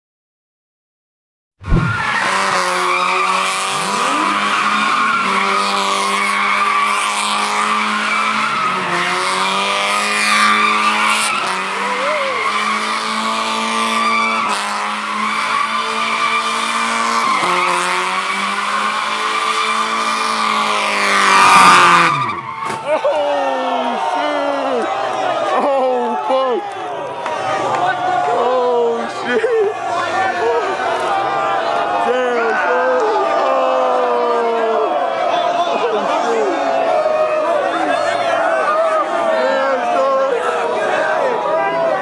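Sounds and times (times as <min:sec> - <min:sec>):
tires squealing: 0:01.6 - 0:42.0
car engine at high revs: 0:01.8 - 0:22.6.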